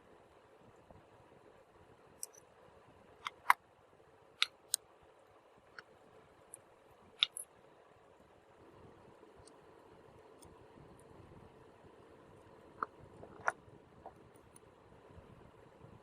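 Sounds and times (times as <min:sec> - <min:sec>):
faint steady hiss: 0:00.0 - 0:16.0
small hard objects clicking: 0:07.2 - 0:07.4.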